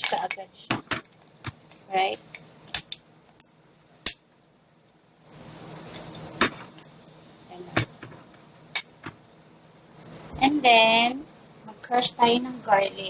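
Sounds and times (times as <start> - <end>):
seeds popping in hot oil: 0.0 - 4.4
oil sizzling: 0.0 - 12.7.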